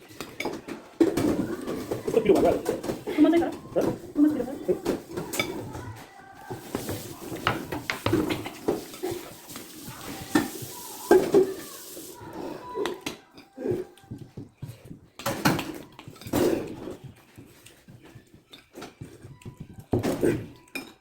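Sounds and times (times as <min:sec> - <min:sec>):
cutlery clinking on plates: 0:00.0 - 0:05.8, 0:06.5 - 0:11.7, 0:15.2 - 0:21.0.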